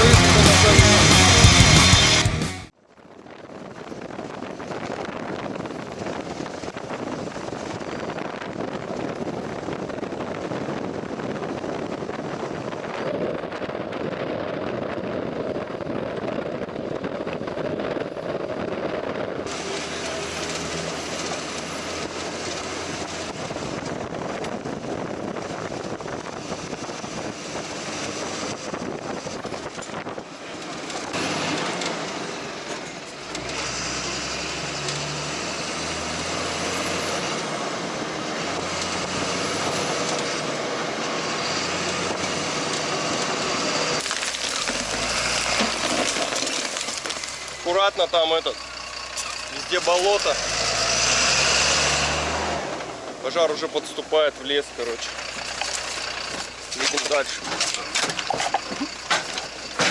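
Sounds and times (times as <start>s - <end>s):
moving vehicle rumble: 0.0s - 59.9s.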